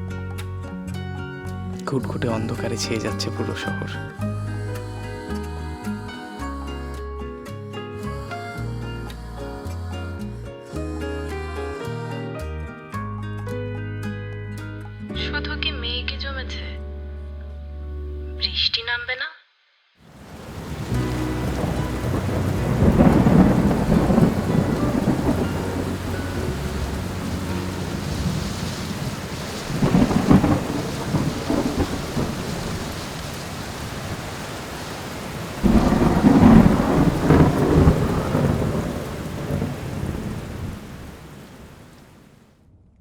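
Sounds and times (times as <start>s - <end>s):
steady rain: 20.0s - 42.5s
rolls of thunder: 20.1s - 43.0s.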